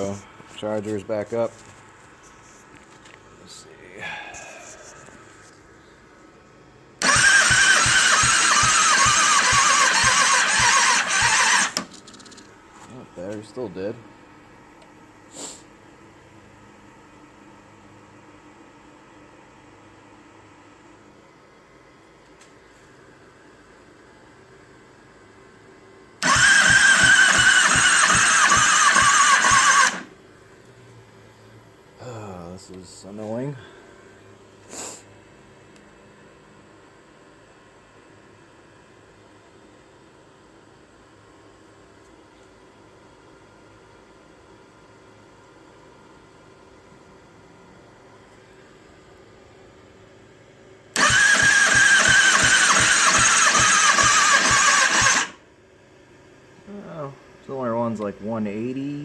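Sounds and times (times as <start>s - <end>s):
motorcycle starter motor cranking: 7.0s - 12.5s, 26.2s - 30.1s, 51.0s - 55.4s.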